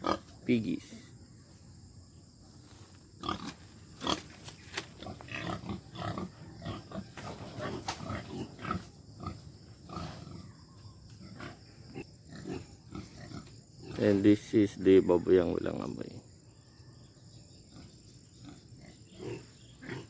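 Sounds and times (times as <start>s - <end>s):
pigs grunting: 0.0s - 1.1s, 3.2s - 10.6s, 11.2s - 14.4s, 17.6s - 20.0s.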